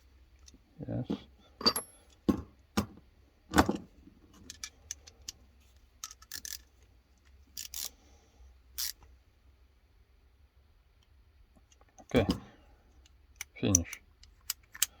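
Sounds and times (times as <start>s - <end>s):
metal tools clinking on workbench: 1.6s - 2.2s.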